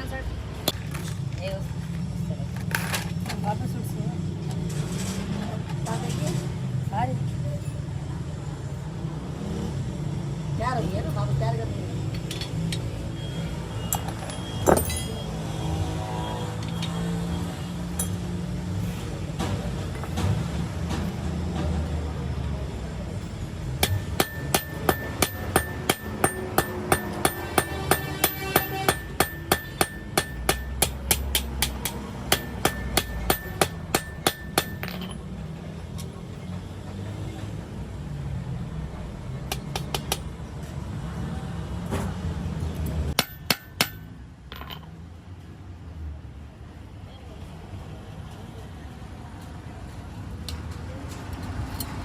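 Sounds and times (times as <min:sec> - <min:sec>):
hammer striking metal: 0:23.8 - 0:35.2, 0:43.2 - 0:44.1.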